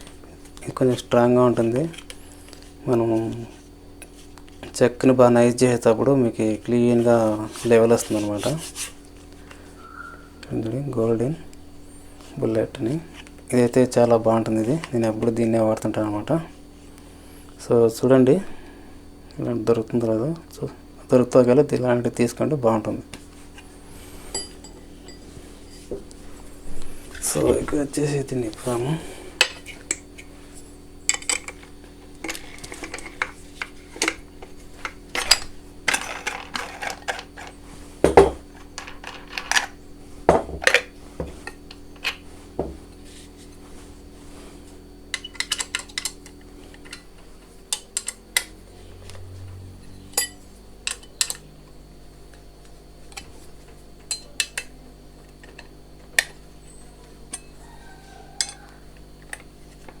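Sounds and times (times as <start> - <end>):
faint steady hum: 0.0 - 60.0
metal parts clinking: 35.1 - 37.6, 38.5 - 39.8.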